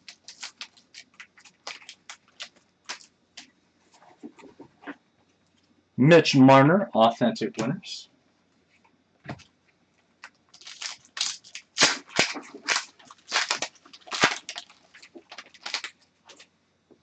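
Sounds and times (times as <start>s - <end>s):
card pack wrappers crinkling: 0.0s - 3.5s, 10.2s - 16.5s
cards rustling in hands: 0.0s - 3.5s, 10.5s - 16.5s.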